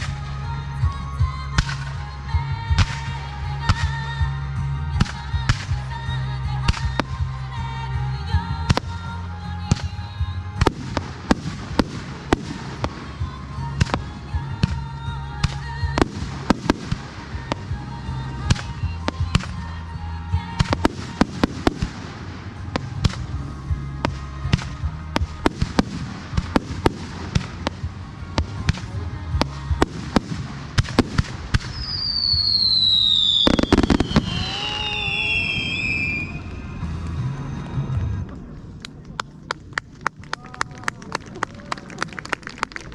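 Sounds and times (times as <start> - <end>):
music from loudspeakers: 0.0 - 38.2
fireworks bangs: 9.7 - 38.6
firework whistles gliding down: 31.6 - 38.1.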